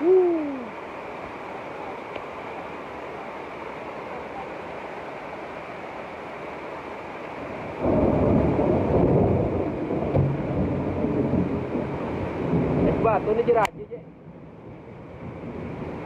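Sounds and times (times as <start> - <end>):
heavy rain hissing: 0.0 - 16.0
thunder rumbling: 7.4 - 16.0.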